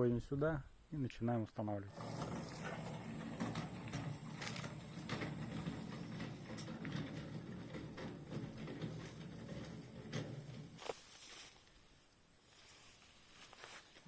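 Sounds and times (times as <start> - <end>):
light rattles and knocks: 1.9 - 11.0
wheelbarrow wheel rumbling: 1.9 - 11.3.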